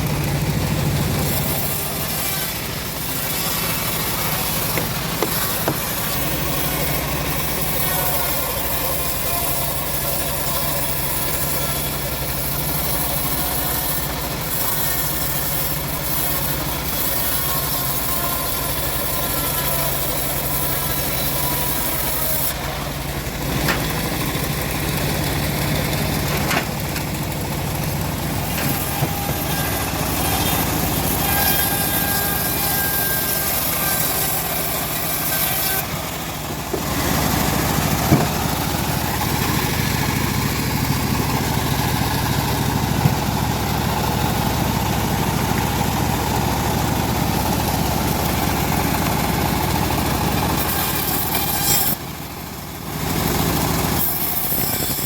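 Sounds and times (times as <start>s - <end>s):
bandsaw mill engine running: 0.0s - 55.0s
sharp knock: 38.1s - 38.5s.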